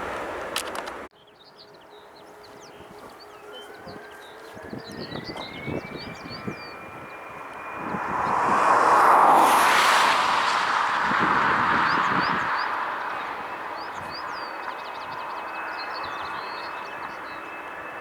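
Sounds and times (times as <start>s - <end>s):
jet airliner engines roaring: 0.0s - 1.1s, 2.0s - 18.0s
birds chirping: 0.0s - 18.0s.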